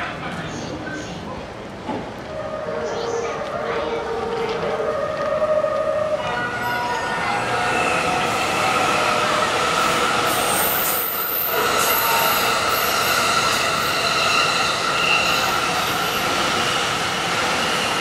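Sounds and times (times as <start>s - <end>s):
train cars rushing past: 1.4s - 18.0s.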